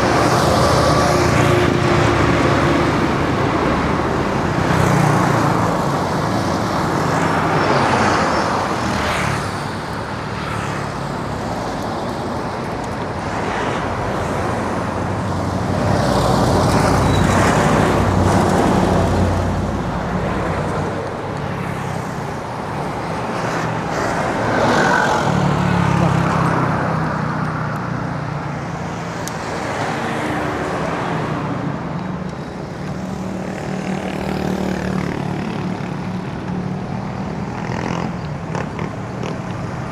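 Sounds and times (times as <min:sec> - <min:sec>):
road traffic rushing: 0:00.0 - 0:39.9.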